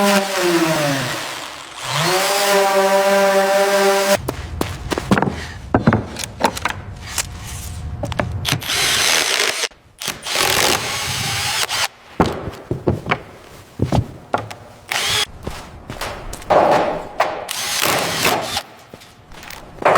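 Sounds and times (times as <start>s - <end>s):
power tool running: 0.0s - 4.2s, 8.5s - 11.9s, 14.9s - 15.3s, 17.5s - 18.6s
knocks and clatter: 15.4s - 19.9s.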